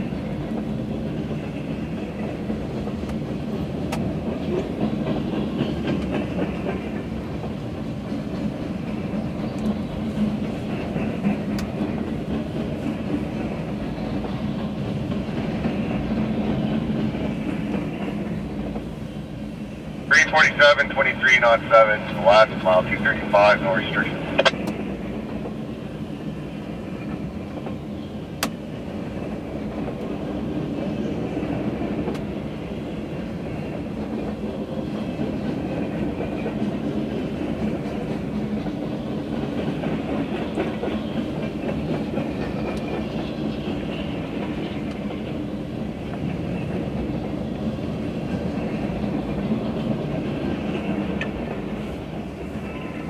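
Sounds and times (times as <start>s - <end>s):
freight train wheels on rails: 0.0s - 53.0s.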